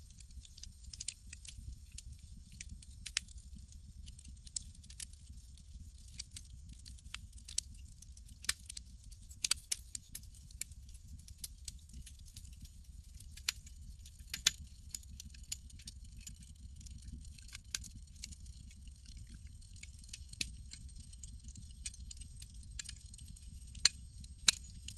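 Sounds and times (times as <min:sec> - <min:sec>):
campfire crackling: 0:00.3 - 0:05.4, 0:06.0 - 0:13.6, 0:14.3 - 0:24.9
low steady rumble: 0:10.1 - 0:24.9.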